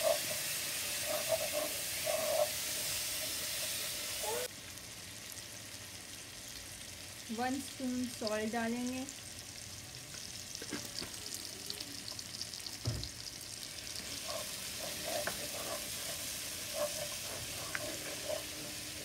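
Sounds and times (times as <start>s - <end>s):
masala sizzling in oil: 0.0s - 19.0s
knock: 12.8s - 13.1s
plastic spoon scraping and stirring: 14.0s - 19.0s.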